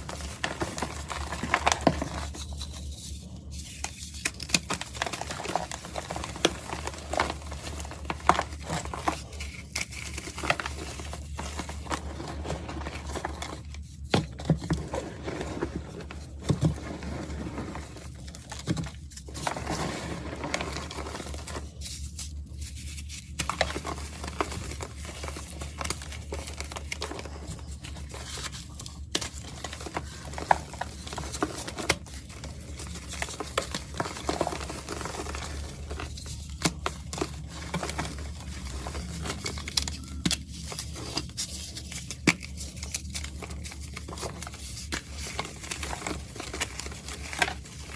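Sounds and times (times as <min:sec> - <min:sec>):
powder block being crushed: 0:04.2 - 0:15.8.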